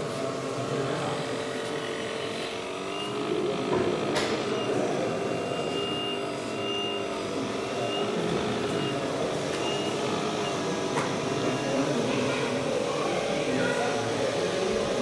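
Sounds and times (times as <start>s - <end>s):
background hubbub: 0.0s - 15.0s
electronic engine drone: 0.6s - 14.8s
high reversing beep: 2.9s - 3.2s, 4.5s - 10.6s, 11.3s - 11.9s.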